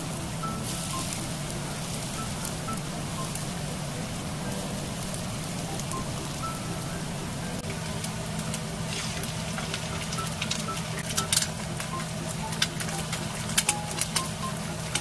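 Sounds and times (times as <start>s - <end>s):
oil popping and crackling: 0.0s - 15.0s
vegetables sizzling in a pan: 0.0s - 15.0s
egg cracking: 7.5s - 15.0s.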